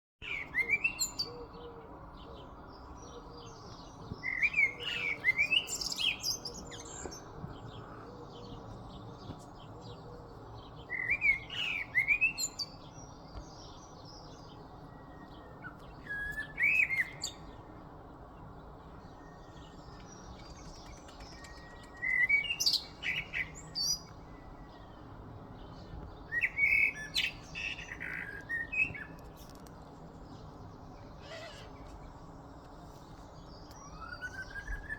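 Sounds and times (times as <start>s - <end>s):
songbird chirping and whistling: 0.2s - 1.3s, 4.2s - 7.2s, 10.9s - 12.8s, 15.0s - 17.5s, 21.3s - 24.7s, 26.3s - 29.2s, 33.6s - 34.9s
steady background noise: 0.3s - 34.9s.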